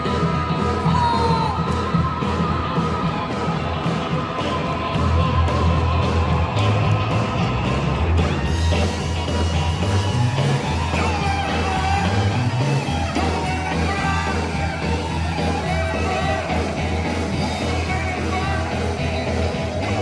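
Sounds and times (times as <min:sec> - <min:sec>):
person singing: 0:00.0 - 0:04.2, 0:10.4 - 0:20.0
gospel band playing loud: 0:00.0 - 0:20.0
heavy steady bass line: 0:00.0 - 0:20.0.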